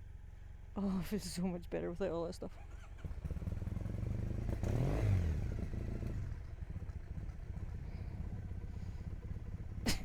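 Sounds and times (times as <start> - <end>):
motorcycle engine running: 3.0 - 9.8.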